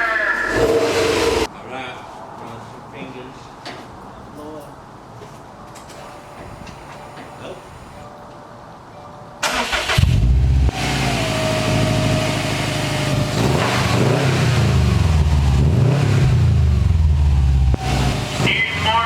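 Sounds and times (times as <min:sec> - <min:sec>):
car engine starting and revving: 0:00.5 - 0:01.5, 0:09.4 - 0:19.0.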